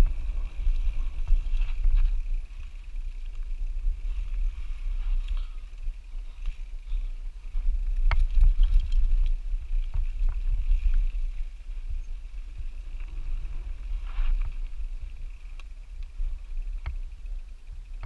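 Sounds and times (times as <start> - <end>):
wind buffeting microphone: 0.0 - 18.0
bike knocks and rattles: 6.3 - 11.1.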